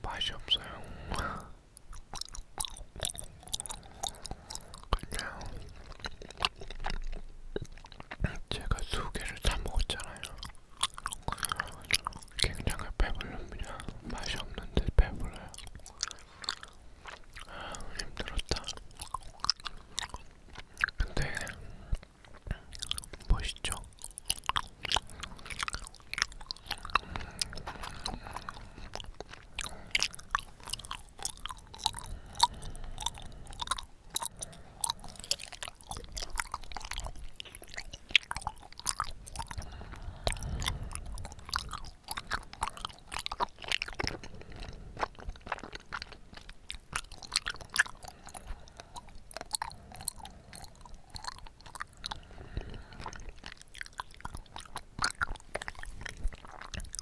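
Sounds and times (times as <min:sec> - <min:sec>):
wet chewing mouth sounds: 0:00.0 - 0:57.0.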